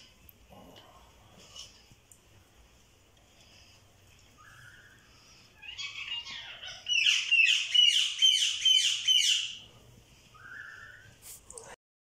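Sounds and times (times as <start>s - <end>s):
bird calling: 4.4s - 9.6s, 10.3s - 11.2s.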